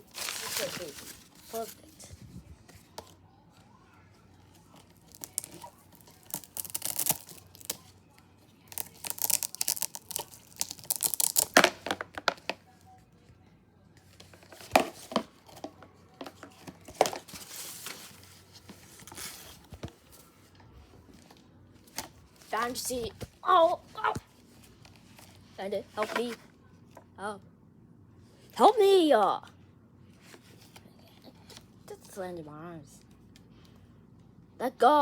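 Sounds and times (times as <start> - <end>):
rustling and crinkling: 0.0 - 8.0, 14.0 - 27.0.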